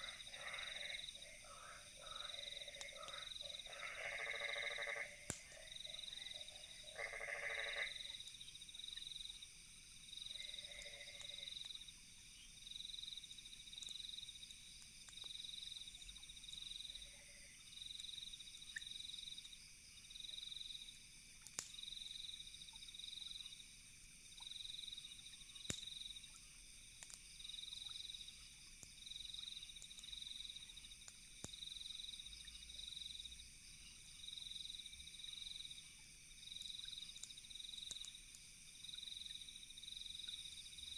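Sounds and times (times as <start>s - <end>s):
frog calling: 0.0s - 8.0s
campfire crackle: 0.0s - 40.9s
cricket chirping: 0.0s - 40.9s
high insect hum: 0.0s - 40.9s.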